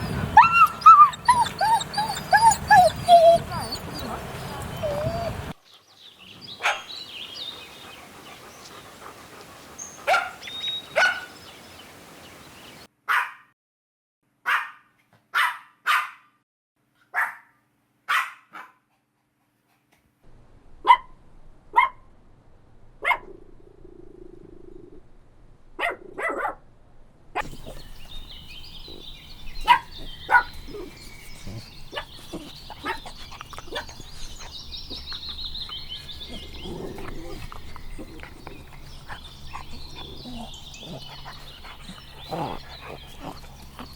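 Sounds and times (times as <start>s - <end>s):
dog barking: 6.6s - 6.9s, 10.0s - 11.4s, 13.1s - 13.5s, 14.5s - 16.3s, 17.1s - 18.8s, 21.7s - 22.0s, 23.0s - 23.3s, 25.8s - 26.6s, 29.6s - 30.9s.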